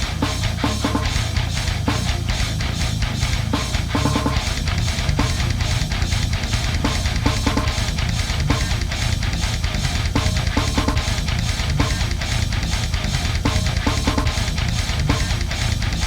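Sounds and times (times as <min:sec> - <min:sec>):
heavy rock music: 0:00.0 - 0:16.0.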